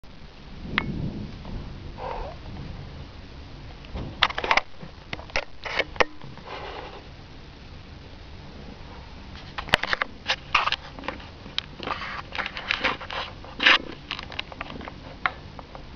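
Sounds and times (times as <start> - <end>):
cat sniffing: 6.4 - 7.1
taps and scratches on camera: 9.4 - 15.4.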